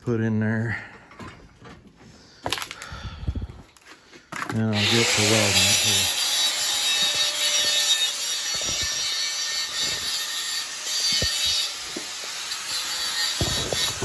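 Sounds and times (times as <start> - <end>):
saw cutting steel: 4.7 - 14.0.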